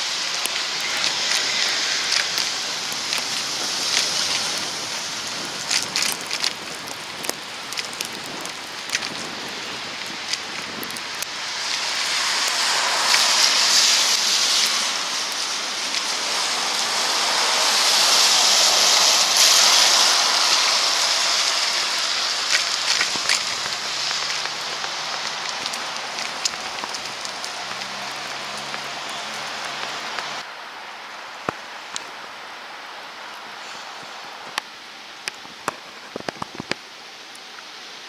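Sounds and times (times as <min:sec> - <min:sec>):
tyres hissing through wet slush: 0:00.0 - 0:30.6, 0:31.6 - 0:35.4.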